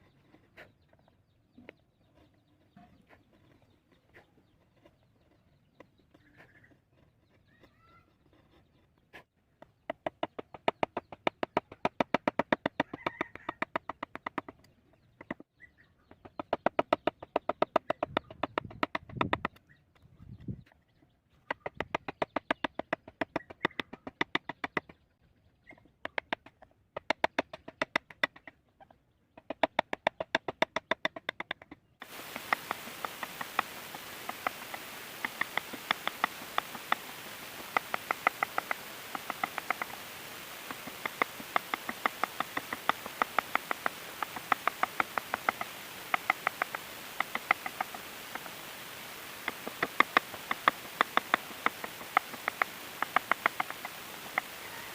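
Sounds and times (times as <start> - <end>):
steady hiss: 32.0 - 54.9.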